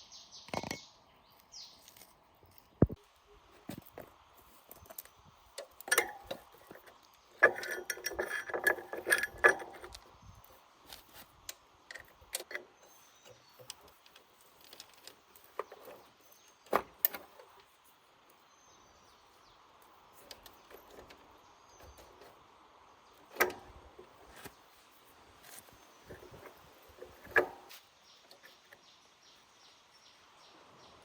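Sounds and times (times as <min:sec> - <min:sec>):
objects clicking and knocking: 0:00.5 - 0:00.9, 0:03.6 - 0:17.7, 0:25.5 - 0:28.8.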